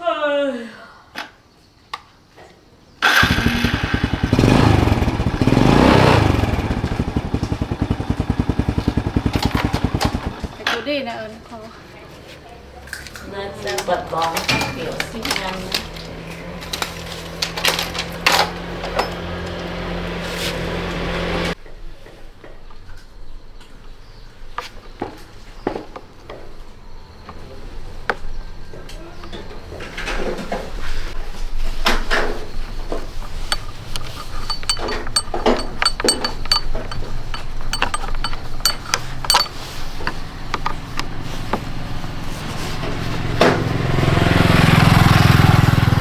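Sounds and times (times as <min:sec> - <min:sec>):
motor humming: 0:03.0 - 0:10.7, 0:33.5 - 0:46.0
metal clinks: 0:04.3 - 0:10.7, 0:33.4 - 0:41.2.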